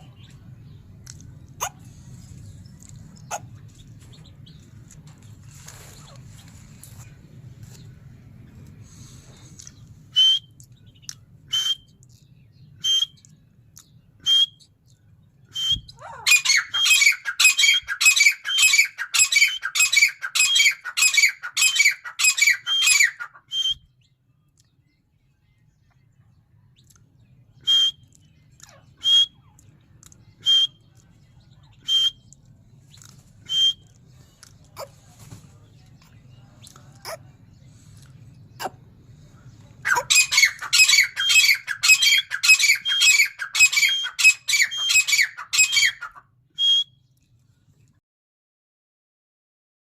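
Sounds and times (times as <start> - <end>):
bird calling: 39.8 - 46.9.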